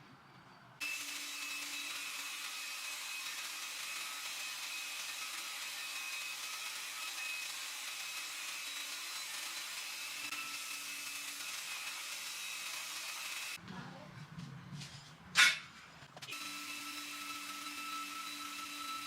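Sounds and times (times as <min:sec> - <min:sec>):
belt grinder hissing: 0:00.8 - 0:13.6.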